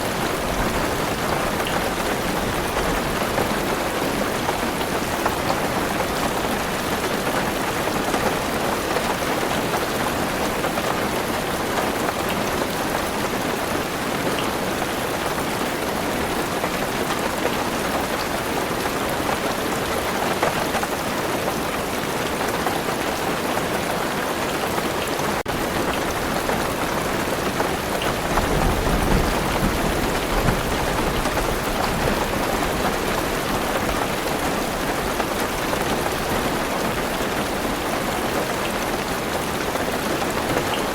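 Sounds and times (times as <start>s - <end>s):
heavy rain on a car roof: 0.0s - 40.9s
thunder rumbling: 25.6s - 34.1s.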